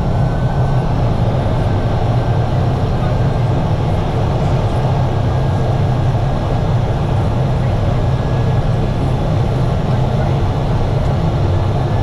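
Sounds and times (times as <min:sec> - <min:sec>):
propeller aircraft engine drone: 0:00.0 - 0:12.0.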